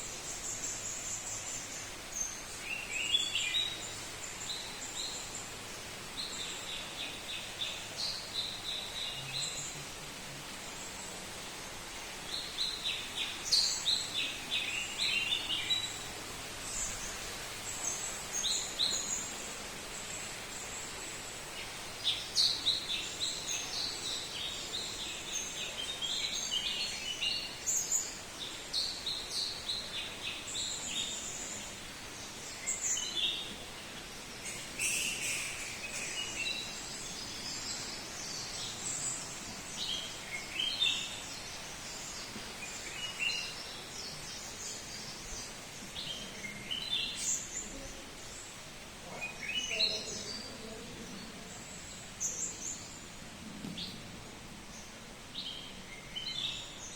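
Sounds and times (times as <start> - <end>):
steady background hiss: 0.0 - 56.9
birds chirping and calling: 34.4 - 53.1.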